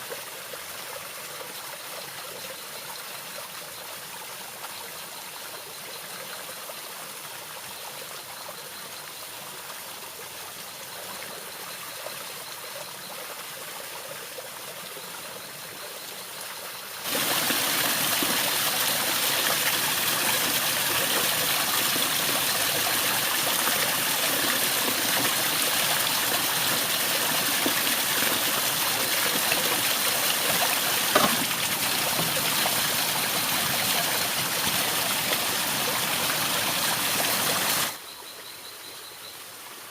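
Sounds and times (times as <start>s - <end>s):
stream water rushing: 0.0s - 2.2s, 16.8s - 38.0s
brief knock: 31.1s - 31.5s.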